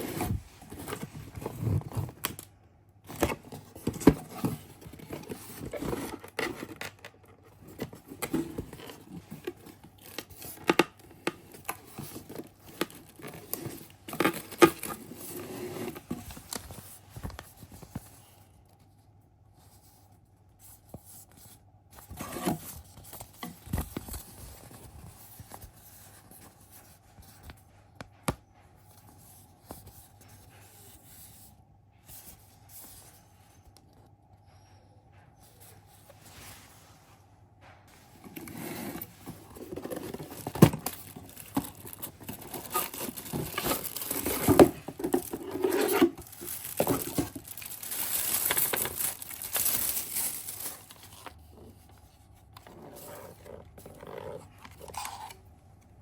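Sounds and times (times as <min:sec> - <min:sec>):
scraping and clicking handling: 0:00.0 - 0:02.5, 0:03.1 - 0:18.2, 0:37.9 - 0:55.9.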